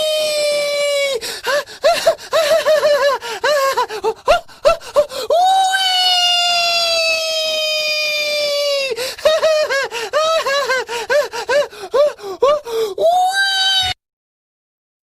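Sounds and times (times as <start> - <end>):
high-pitched voice crying: 0.0 - 14.0.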